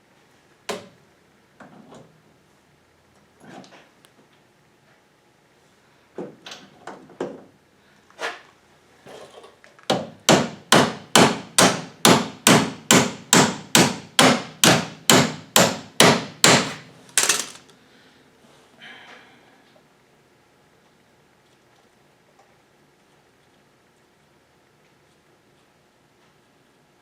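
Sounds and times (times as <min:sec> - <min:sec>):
hammer striking steel: 0:10.3 - 0:17.6.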